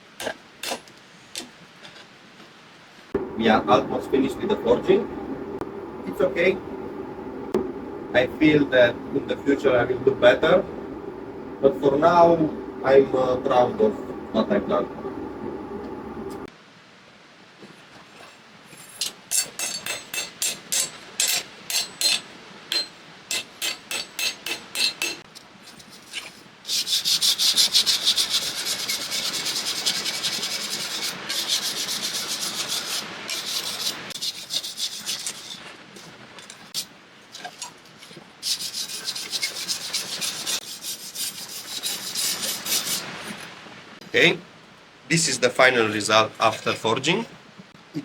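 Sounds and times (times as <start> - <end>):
scraping strokes on steel blade: 18.8 - 35.8, 38.4 - 43.1.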